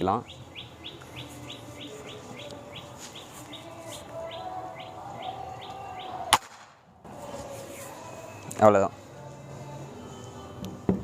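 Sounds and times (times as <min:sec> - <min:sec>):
bird chirping: 0:00.0 - 0:06.3
air rifle sharp crack: 0:06.3 - 0:06.8.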